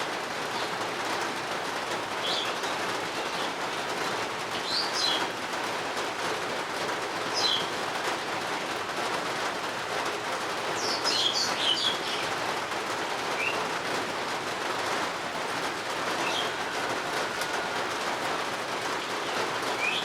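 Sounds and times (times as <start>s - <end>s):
steady rain hiss: 0.0s - 20.0s
songbird chirping: 10.8s - 12.4s, 13.3s - 13.7s, 16.1s - 16.8s, 19.0s - 20.0s.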